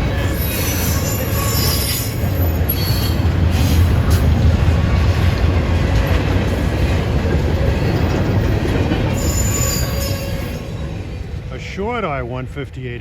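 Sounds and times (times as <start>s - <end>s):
freight train wheels rumbling: 0.0s - 13.0s
high wheel squeal: 0.2s - 3.8s, 9.1s - 11.2s.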